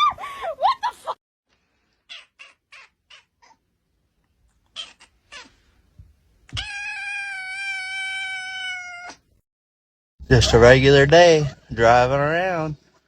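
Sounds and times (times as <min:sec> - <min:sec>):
cat meowing: 0:04.7 - 0:05.6, 0:06.5 - 0:09.3.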